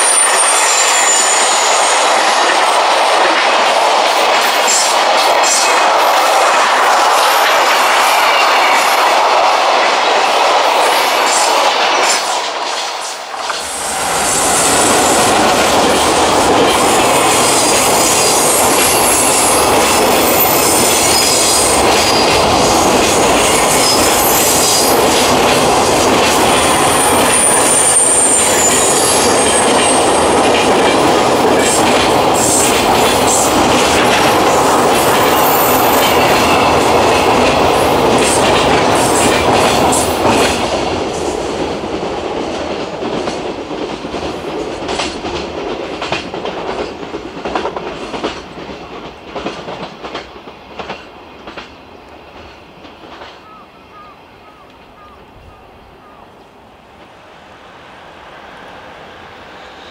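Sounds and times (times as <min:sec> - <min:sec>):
high wheel squeal: 0:00.0 - 0:02.6, 0:13.6 - 0:15.6, 0:18.0 - 0:22.9, 0:26.6 - 0:30.2
freight train wheels rumbling on rail: 0:00.0 - 0:59.9.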